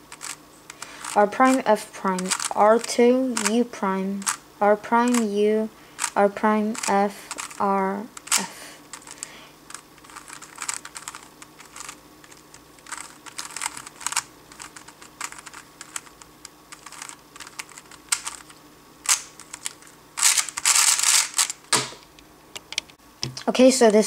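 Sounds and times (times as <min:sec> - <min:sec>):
plastic puzzle cube clicking: 0:02.2 - 0:02.6, 0:03.3 - 0:03.6, 0:06.0 - 0:07.6, 0:08.2 - 0:18.5, 0:19.1 - 0:21.6
loud cube clacks: 0:16.8 - 0:18.4, 0:19.1 - 0:22.0.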